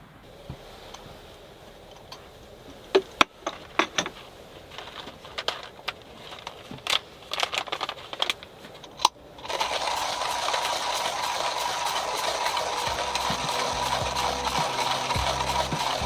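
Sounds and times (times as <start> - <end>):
small hard objects clinking: 3.4 - 16.0.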